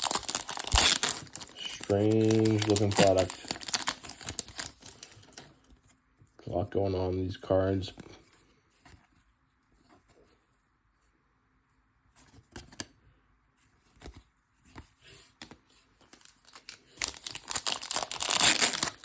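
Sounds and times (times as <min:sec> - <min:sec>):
foil wrapper tearing and crinkling: 0:00.0 - 0:05.2, 0:16.1 - 0:19.0
trading cards clicking and rustling: 0:00.0 - 0:05.6.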